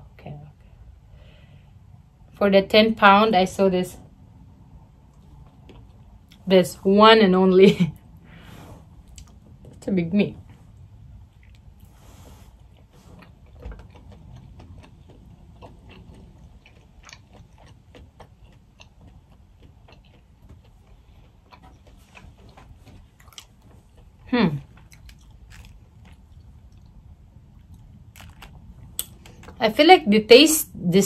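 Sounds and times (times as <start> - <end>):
person chewing: 5.0 - 6.4, 8.0 - 9.8, 10.6 - 29.6.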